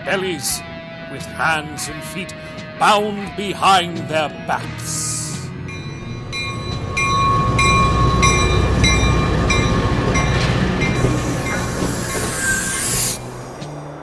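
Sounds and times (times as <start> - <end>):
train rumble: 5.7 - 14.0
train wheels clicking over rail joints: 10.3 - 13.8
hiss: 11.0 - 14.0.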